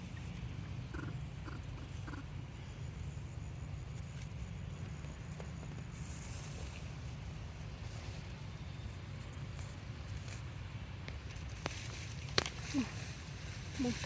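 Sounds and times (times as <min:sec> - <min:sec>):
steady low rumble: 0:00.0 - 0:14.0
high monkey calls: 0:00.9 - 0:02.3.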